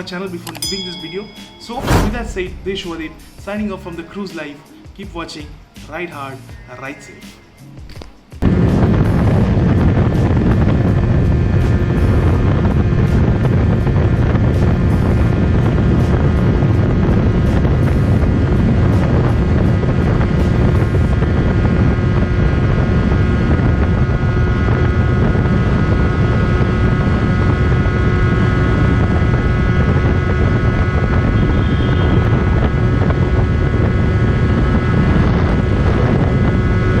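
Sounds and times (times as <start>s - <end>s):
wind rushing over microphone: 0.7s - 3.8s, 8.4s - 37.0s
motorcycle engine cruising: 8.4s - 37.0s.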